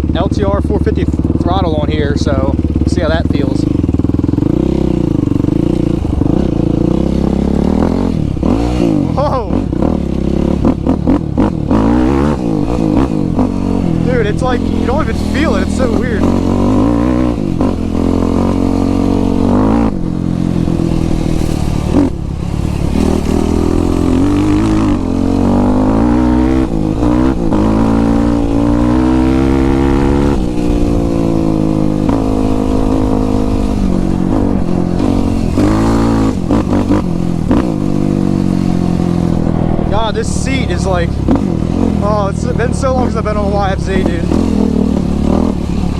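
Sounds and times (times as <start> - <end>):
quad bike engine revving: 0.0 - 45.9.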